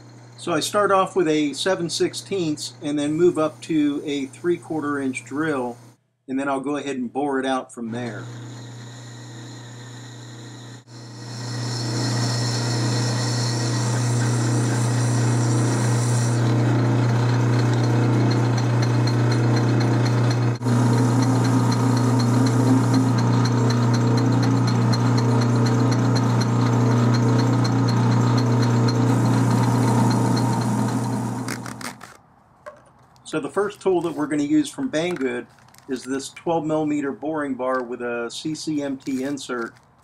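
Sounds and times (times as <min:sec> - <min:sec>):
lathe motor hum: 0:00.0 - 0:05.9, 0:08.0 - 0:31.9
drill cutting into steel bolt: 0:08.0 - 0:32.1.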